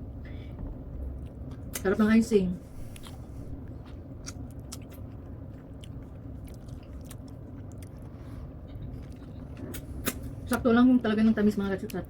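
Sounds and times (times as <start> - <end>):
steady low hum: 0.0 - 12.0
person chewing cake: 2.8 - 10.6.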